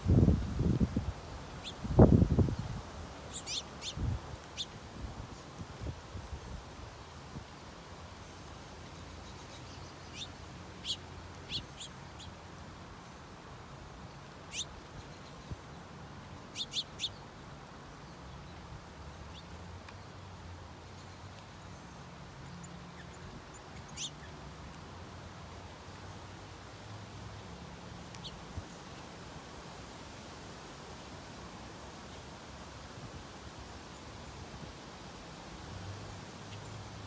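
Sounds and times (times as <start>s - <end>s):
songbirds chirping: 0.1s - 29.3s.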